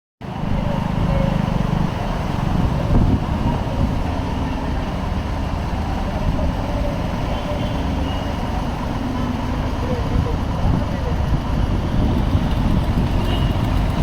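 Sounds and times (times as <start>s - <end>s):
vehicle engines running: 0.2s - 14.0s.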